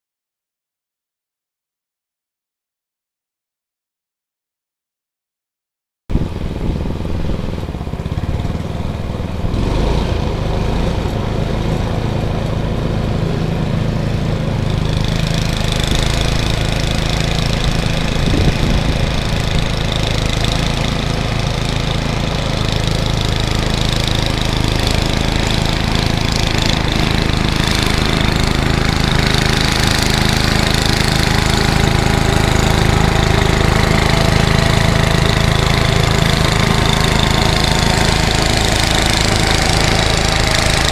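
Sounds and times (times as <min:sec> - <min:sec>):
snowblower engine running: 0:06.1 - 0:40.9.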